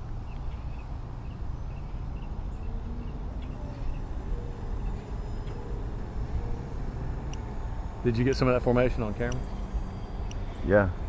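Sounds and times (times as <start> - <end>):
thin steady high tone: 0.0 - 11.0
whine of small electric motors: 0.0 - 11.0.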